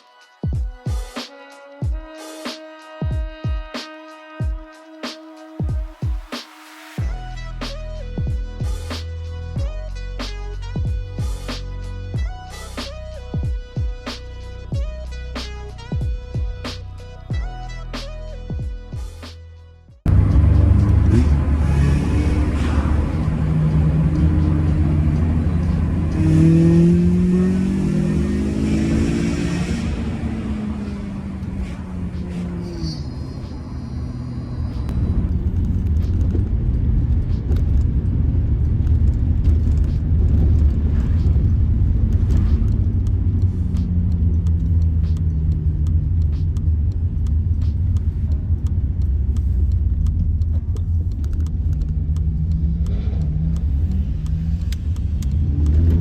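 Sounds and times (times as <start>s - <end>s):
car engine revving: 20.0s - 56.0s
road rumble: 20.0s - 56.0s.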